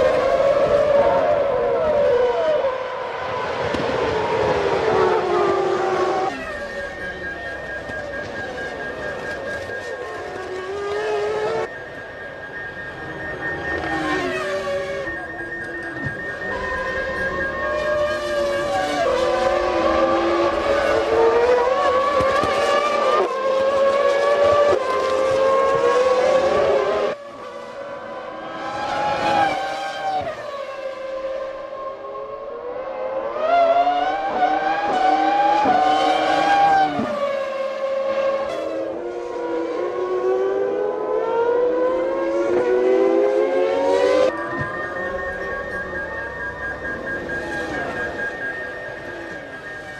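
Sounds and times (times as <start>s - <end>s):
racing car engine shifting gears: 13.6s - 27.8s.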